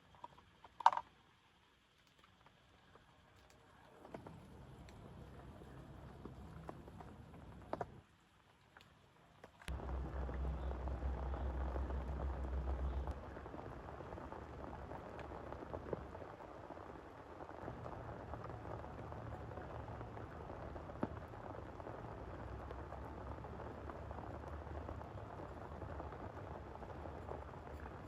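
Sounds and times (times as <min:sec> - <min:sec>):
deep low rumble: 0:09.7 - 0:28.0
heavy rain falling: 0:09.7 - 0:28.0.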